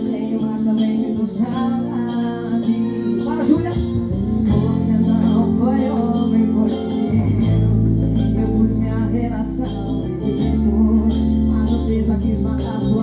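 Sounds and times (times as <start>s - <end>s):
live band music: 0.0s - 13.0s
steady drum beat: 3.3s - 6.2s.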